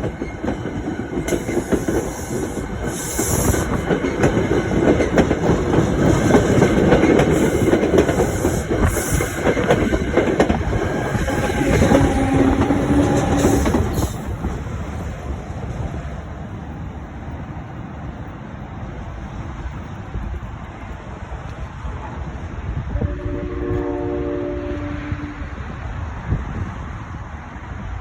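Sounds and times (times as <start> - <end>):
train wheels clattering on rails: 0.0 - 16.0
train passing with loud rumble: 0.0 - 28.0.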